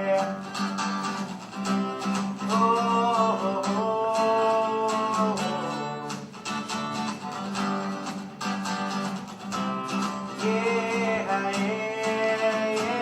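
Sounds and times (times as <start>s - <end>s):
man singing: 0.0s - 0.6s, 2.4s - 6.2s, 10.2s - 13.0s
guitar strumming: 0.0s - 13.0s.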